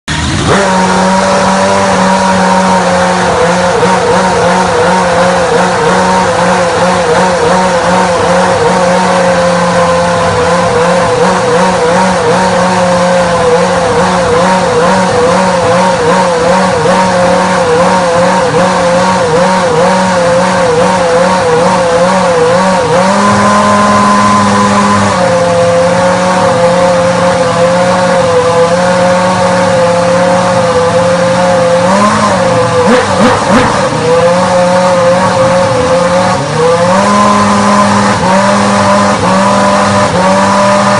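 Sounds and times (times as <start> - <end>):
racing car engine idling: 0.1 - 40.9.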